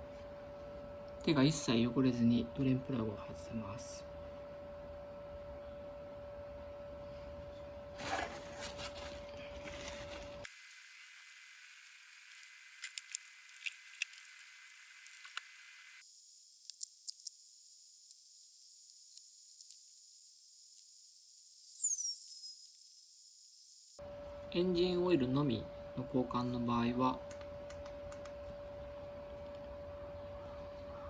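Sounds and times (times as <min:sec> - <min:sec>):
small ticks: 0:10.4 - 0:21.0.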